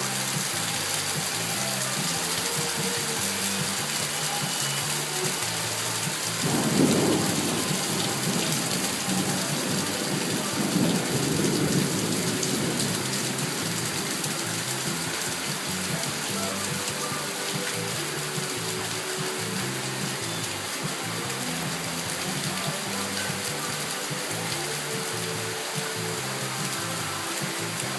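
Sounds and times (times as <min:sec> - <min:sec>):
rain falling: 0:00.0 - 0:27.9
low thunder rumbles: 0:06.4 - 0:14.8.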